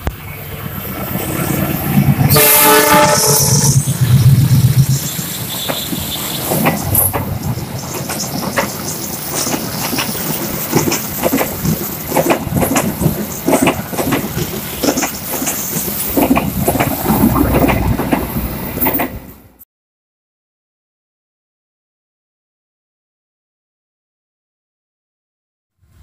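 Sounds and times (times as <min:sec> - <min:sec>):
wheels clacking over track: 0:00.0 - 0:19.4
train rumbling on rails: 0:00.0 - 0:19.6.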